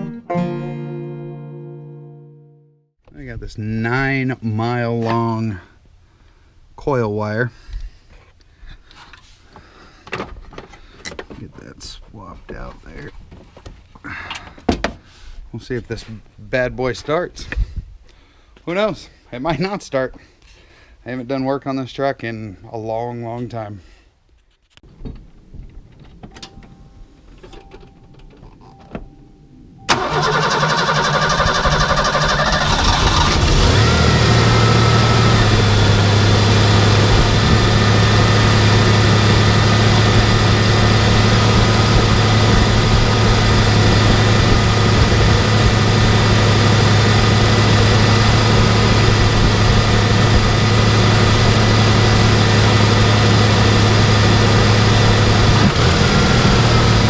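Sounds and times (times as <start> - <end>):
engine cranking and starting: 29.9 - 57.0
engine idling: 29.9 - 57.0.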